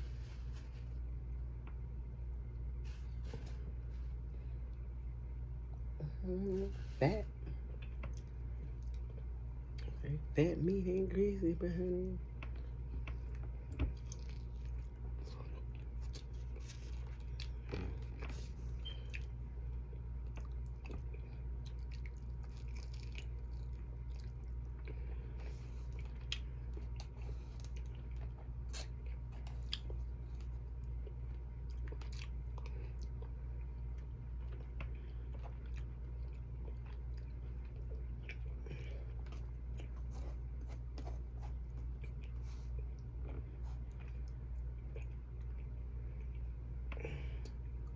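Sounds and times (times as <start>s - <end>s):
steady low hum: 0.0s - 47.9s
person chewing food: 7.4s - 10.0s, 12.3s - 47.9s.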